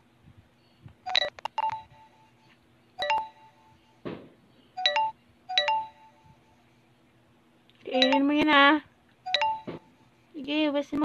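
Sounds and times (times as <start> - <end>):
electronic phone ringtone beeps: 3.0 - 3.9, 4.8 - 6.4, 9.3 - 10.1.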